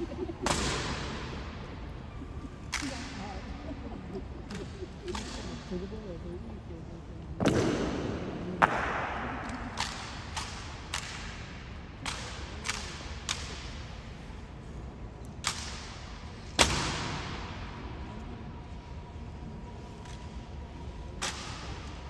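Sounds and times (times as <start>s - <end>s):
rifles slapped and caught: 0.5s - 1.1s, 7.4s - 13.8s, 15.4s - 17.3s, 21.2s - 22.0s.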